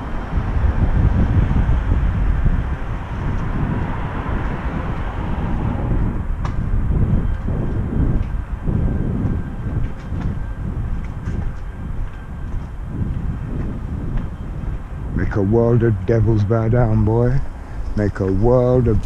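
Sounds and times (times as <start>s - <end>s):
low uneven traffic rumble: 0.0s - 19.0s
passing vehicle rumble: 0.0s - 19.0s.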